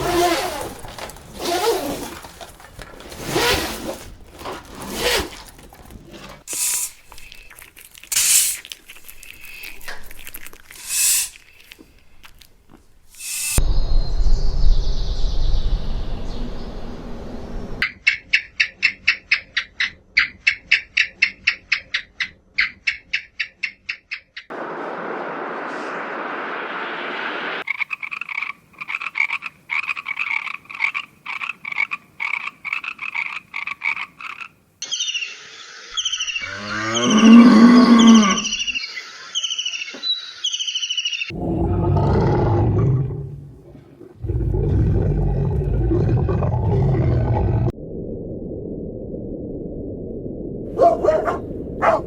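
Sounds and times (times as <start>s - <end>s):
short hiss: 6.5s - 7.3s, 8.1s - 8.7s, 10.7s - 11.8s, 13.1s - 13.6s
high chirping: 34.8s - 41.3s
falling roar-like call: 36.4s - 38.6s, 41.3s - 43.4s
low animal calls: 36.4s - 38.8s.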